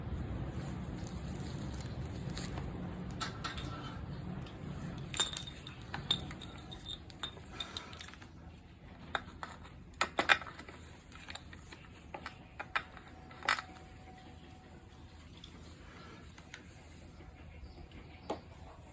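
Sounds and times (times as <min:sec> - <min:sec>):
metallic clinks of tools: 0:05.0 - 0:08.2.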